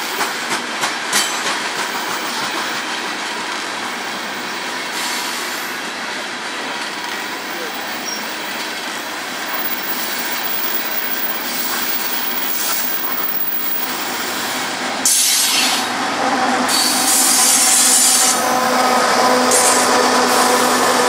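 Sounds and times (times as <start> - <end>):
diesel locomotive engine hum: 0.0 - 21.0
train wheels on rails: 0.0 - 21.0
locomotive hiss: 4.0 - 16.0, 16.7 - 21.0.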